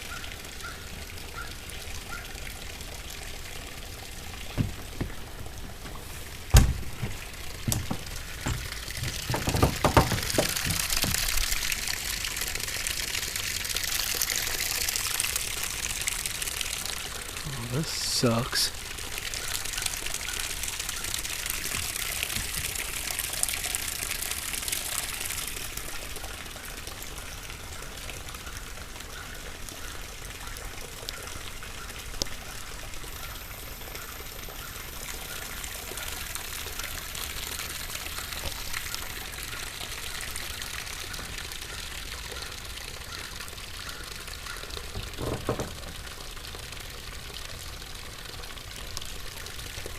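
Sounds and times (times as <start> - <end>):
rain falling: 0.0 - 49.9
dull thump: 4.5 - 11.3.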